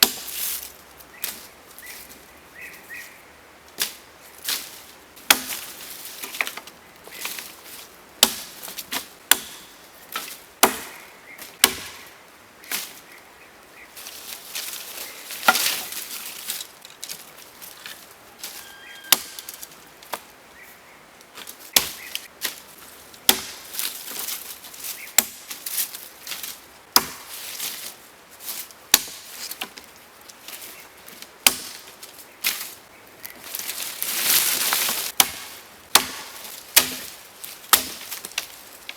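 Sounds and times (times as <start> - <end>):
wood being chopped: 0.0 - 0.4, 5.2 - 7.4, 8.2 - 12.2, 15.3 - 16.0, 19.0 - 20.3, 21.4 - 22.6, 23.2 - 24.4, 25.0 - 25.7, 26.3 - 27.4, 28.9 - 29.9, 31.4 - 31.9, 34.6 - 38.6.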